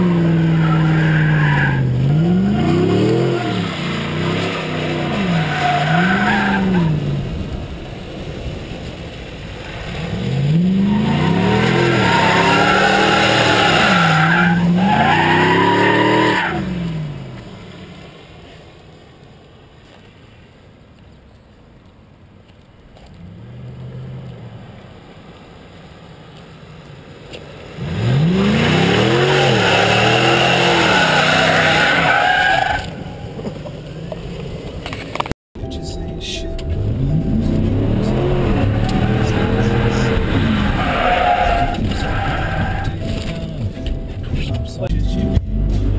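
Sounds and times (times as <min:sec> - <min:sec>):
tyres squealing: 0:00.0 - 0:07.0, 0:10.6 - 0:16.7, 0:28.1 - 0:33.6, 0:37.6 - 0:43.6
pickup engine revving: 0:00.0 - 0:17.4, 0:27.6 - 0:33.0, 0:36.6 - 0:43.8.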